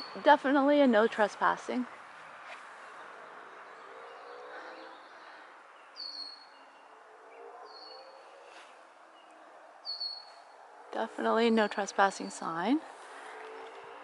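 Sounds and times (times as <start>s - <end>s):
soft rustling hiss: 0.3s - 3.4s.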